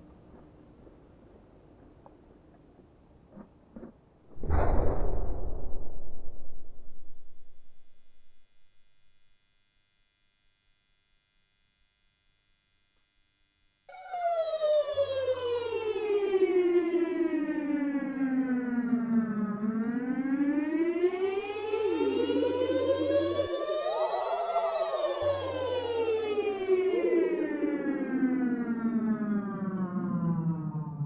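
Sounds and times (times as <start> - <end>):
low steady hum: 4.4 - 13.9
siren-like wail: 13.9 - 31.0.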